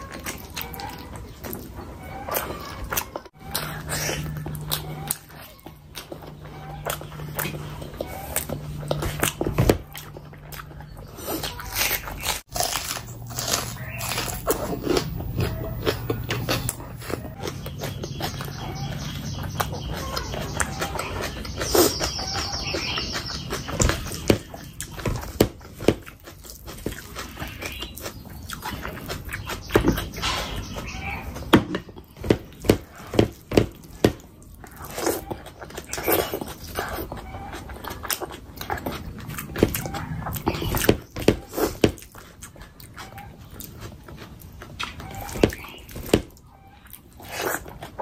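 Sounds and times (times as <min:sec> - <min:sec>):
chewing and lip-smacking: 0:00.0 - 0:48.0.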